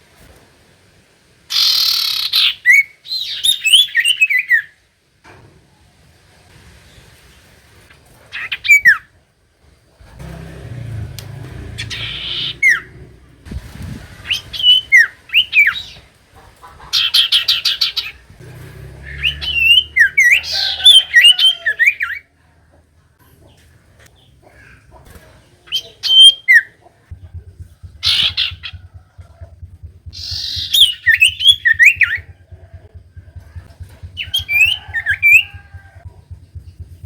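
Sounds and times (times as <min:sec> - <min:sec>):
bird chirps and whistles: 0:30.1 - 0:32.3.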